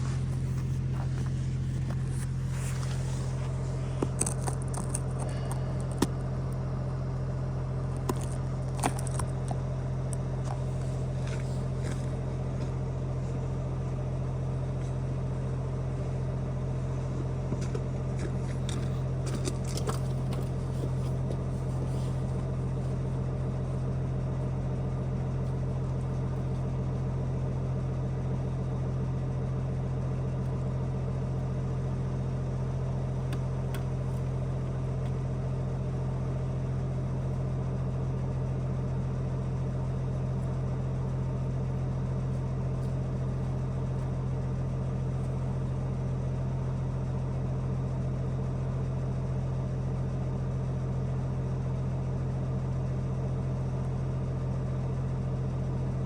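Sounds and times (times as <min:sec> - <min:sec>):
low mechanical hum: 0:00.0 - 0:56.0
sharp crackles and clicks: 0:00.2 - 0:06.6, 0:07.9 - 0:12.1.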